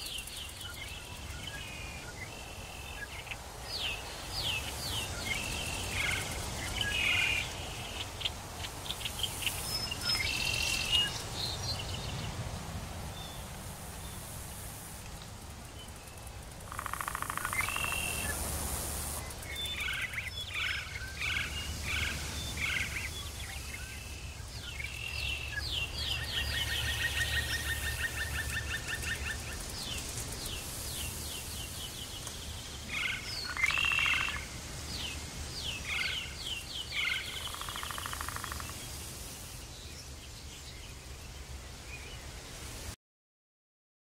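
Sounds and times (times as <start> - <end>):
birds chirping: 15.7 - 41.4
bird trilling: 16.7 - 18.4.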